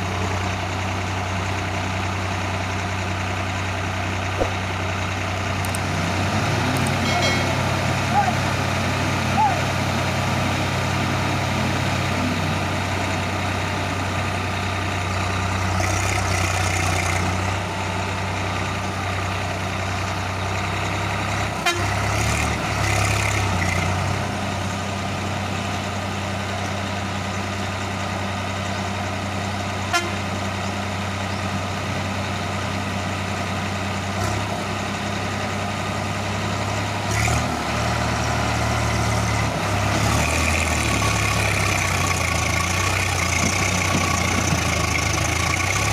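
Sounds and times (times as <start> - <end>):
heavy diesel engines under load: 0.0 - 45.9.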